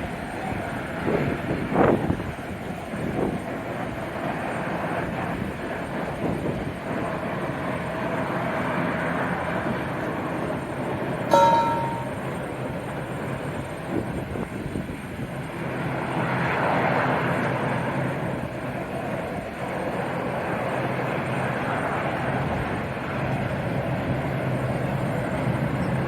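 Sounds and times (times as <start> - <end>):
short ringing tone: 11.3 - 12.5.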